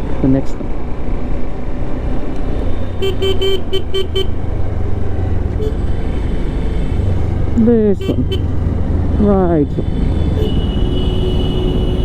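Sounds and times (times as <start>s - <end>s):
motorcycle engine: 0.0s - 12.0s
wind rumble: 0.0s - 12.0s
vehicle horn tooting: 2.9s - 4.4s, 5.6s - 6.0s, 8.0s - 8.5s, 9.7s - 12.0s.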